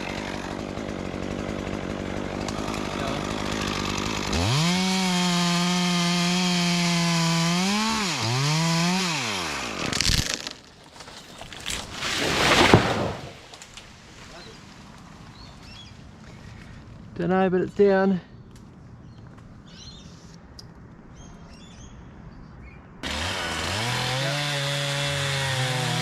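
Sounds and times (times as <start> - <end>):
chainsaw cutting through tree: 0.0 - 13.6, 23.0 - 26.0.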